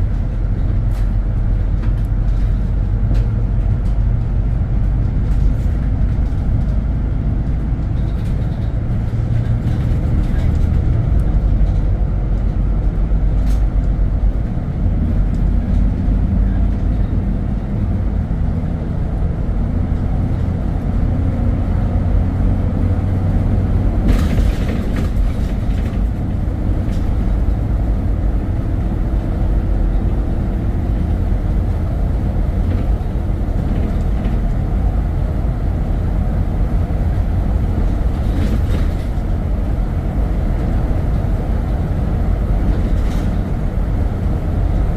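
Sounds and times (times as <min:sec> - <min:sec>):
vehicle engine and road noise: 0:00.0 - 0:44.9
short clatter: 0:24.0 - 0:27.2.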